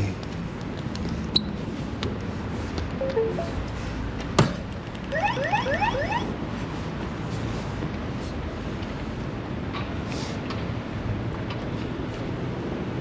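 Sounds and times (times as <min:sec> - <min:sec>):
e-bike alarm beeps: 0:03.0 - 0:03.6, 0:05.1 - 0:06.3
rising electronic chirps: 0:03.0 - 0:03.6, 0:05.1 - 0:06.3.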